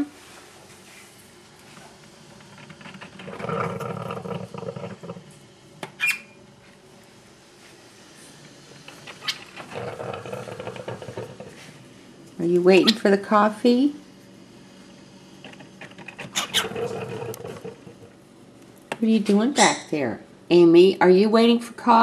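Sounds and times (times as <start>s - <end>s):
coffee maker gurgling and hissing: 0.0s - 5.8s, 7.0s - 18.3s.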